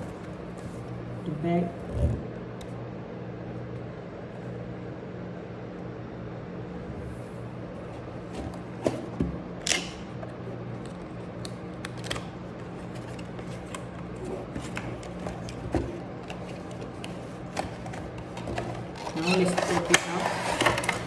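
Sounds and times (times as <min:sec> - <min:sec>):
steady low hum: 0:00.0 - 0:21.0
bag handling clicks: 0:08.3 - 0:10.2, 0:10.8 - 0:21.0
packaging rustling: 0:10.9 - 0:21.0.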